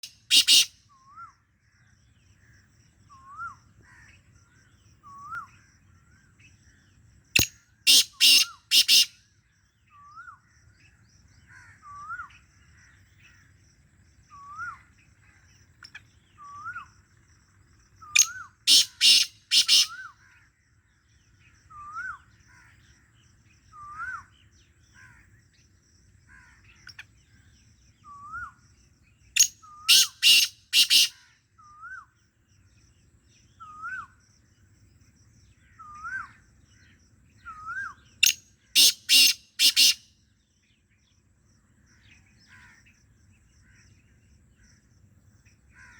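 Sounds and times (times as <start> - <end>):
bird harsh strident calls: 0.0 - 0.8, 7.4 - 9.2, 18.1 - 20.1, 29.4 - 31.4, 38.2 - 40.2.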